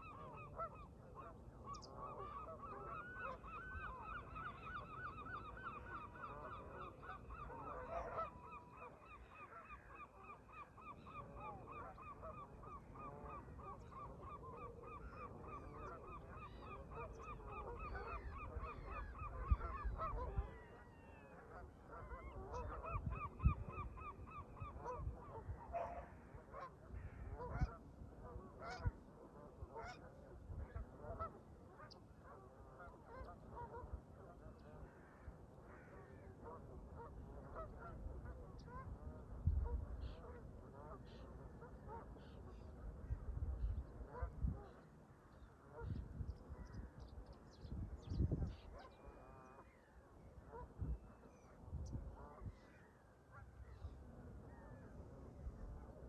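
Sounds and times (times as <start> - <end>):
geese honking: 0.0 - 10.1
wind rumble on microphone: 17.1 - 31.2, 37.2 - 40.7, 42.6 - 44.9, 45.8 - 49.0, 50.5 - 52.7.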